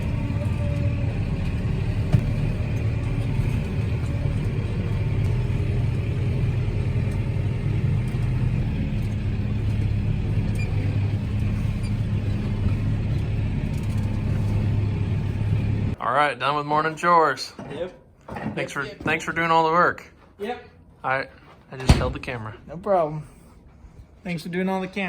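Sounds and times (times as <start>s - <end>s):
tractor diesel engine droning: 0.0s - 16.0s.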